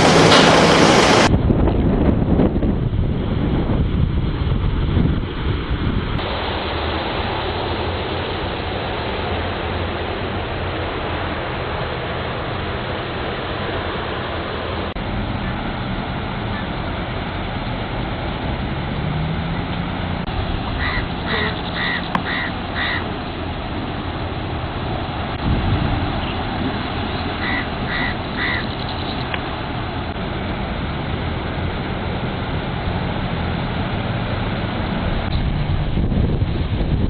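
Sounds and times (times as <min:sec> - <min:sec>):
low engine-like hum: 0:00.0 - 0:37.0
steady rushing noise: 0:00.0 - 0:37.0.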